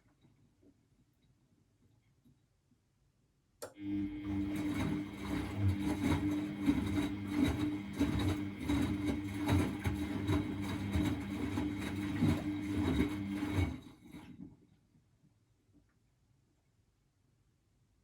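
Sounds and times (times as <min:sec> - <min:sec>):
washing machine motor hum: 0:03.8 - 0:14.4.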